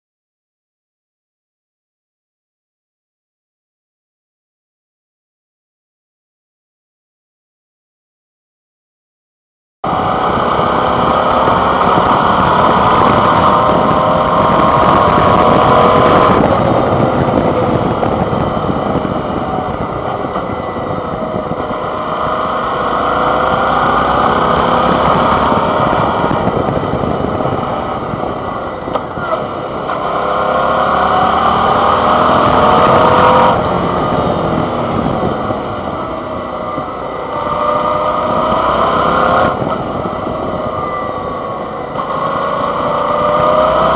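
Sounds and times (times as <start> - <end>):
motorcycle engine revving: 9.8 - 43.9
rushing wind: 9.8 - 43.9.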